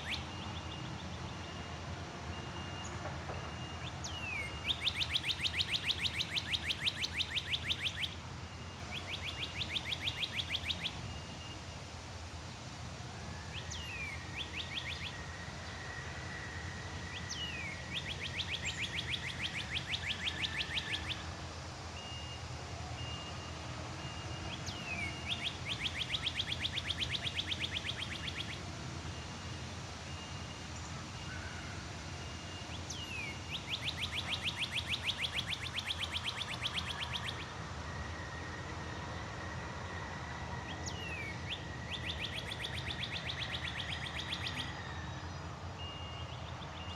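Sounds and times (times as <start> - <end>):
songbird trilling song: 0.0 - 1.7, 2.4 - 11.6, 13.5 - 15.8, 17.1 - 21.2, 24.1 - 29.2, 32.4 - 38.5, 40.6 - 46.9.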